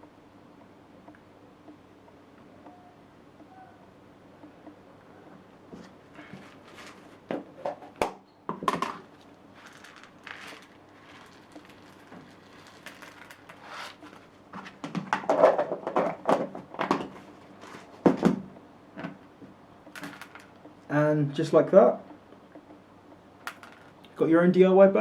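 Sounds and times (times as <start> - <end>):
birdseed rustling and rattling: 6.4 - 7.2, 9.1 - 14.8.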